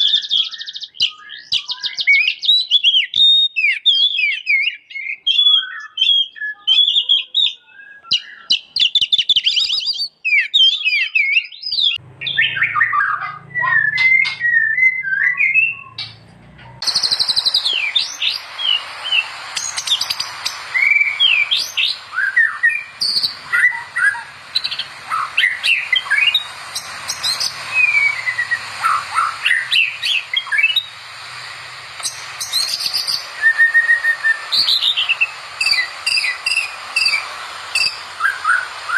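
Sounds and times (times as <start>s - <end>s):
songbird whistles and chatters: 0.0s - 38.9s
steady high hiss: 16.2s - 38.9s.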